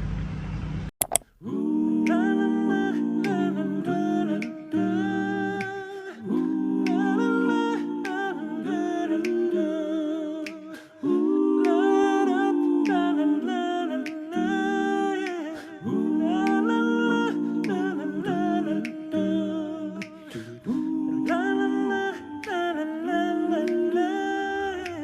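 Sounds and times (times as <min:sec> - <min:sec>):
beat of snaps or clicks: 0:01.0 - 0:01.4, 0:02.0 - 0:02.4, 0:03.2 - 0:03.6, 0:04.3 - 0:04.9, 0:05.5 - 0:08.4, 0:09.2 - 0:09.6, 0:10.4 - 0:10.8, 0:11.6 - 0:11.9, 0:12.5 - 0:13.2, 0:14.0 - 0:14.4, 0:15.2 - 0:15.6, 0:16.4 - 0:22.8, 0:23.5 - 0:24.0, 0:24.7 - 0:25.0
a cappella humming voices: 0:01.4 - 0:25.0.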